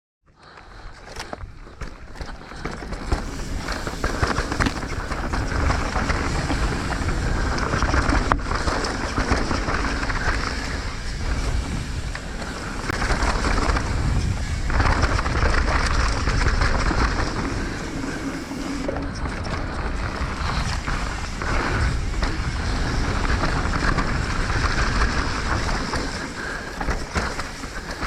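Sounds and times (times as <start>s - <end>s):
bike tyre noise on dirt: 0.3s - 28.0s
bike rattling and clicking: 0.4s - 28.0s
wind buffeting microphone: 0.7s - 28.0s.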